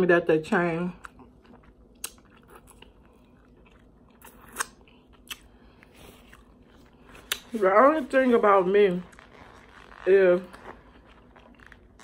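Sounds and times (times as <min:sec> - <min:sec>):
chewing crunchy nachos: 0:01.0 - 0:07.6, 0:09.0 - 0:12.0.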